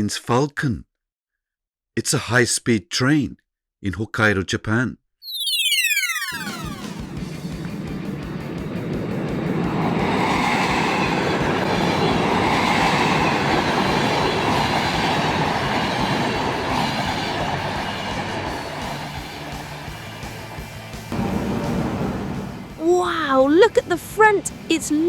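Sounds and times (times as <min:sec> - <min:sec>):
high-speed train passing: 0:06.6 - 0:23.0.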